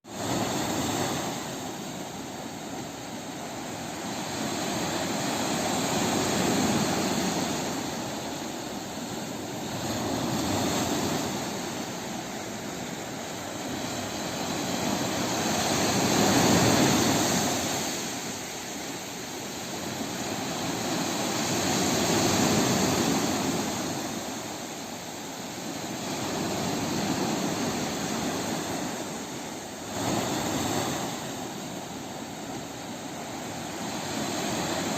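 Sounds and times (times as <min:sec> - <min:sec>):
sea waves washing in: 0:00.0 - 0:34.9.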